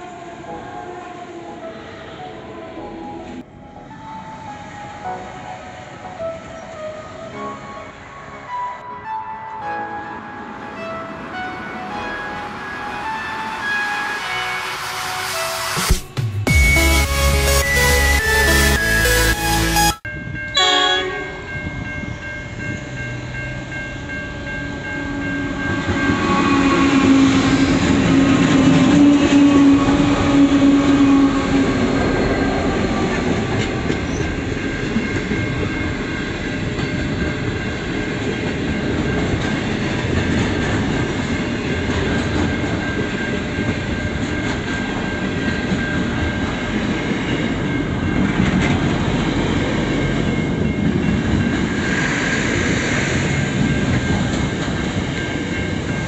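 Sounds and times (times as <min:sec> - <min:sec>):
diesel locomotives passing: 0:00.0 - 0:15.8, 0:16.8 - 0:56.0
level crossing warning bells: 0:16.5 - 0:56.0.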